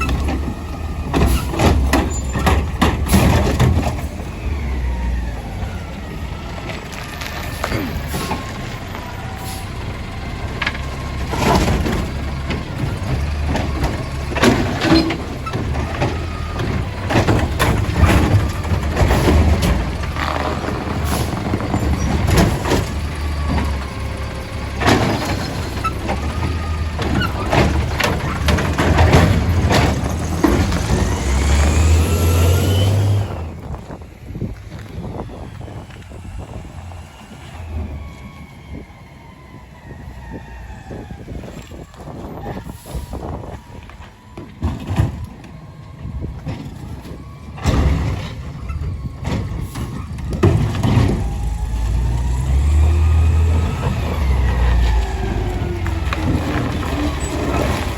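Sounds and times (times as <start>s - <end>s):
bins banging against truck: 0.0s - 4.5s, 10.4s - 33.9s, 44.2s - 57.9s
garbage truck engine revving: 0.0s - 34.4s, 44.2s - 57.9s.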